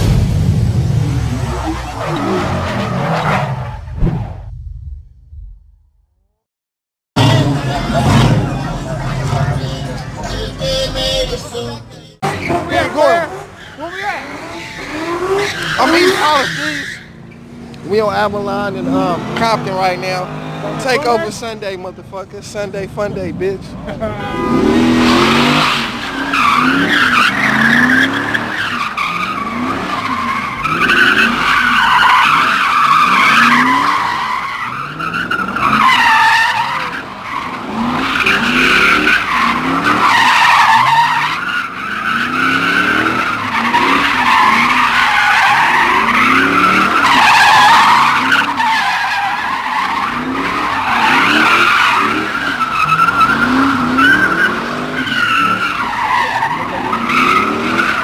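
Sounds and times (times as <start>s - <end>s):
tyres squealing: 7.2s - 18.0s, 24.1s - 58.0s
car engine revving: 7.2s - 58.0s.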